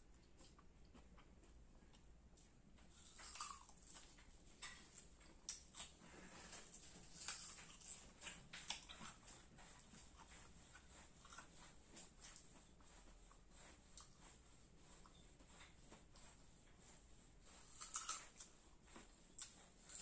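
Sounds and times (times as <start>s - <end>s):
crunching bite of mango: 2.9s - 6.0s, 6.8s - 9.2s, 17.7s - 18.5s.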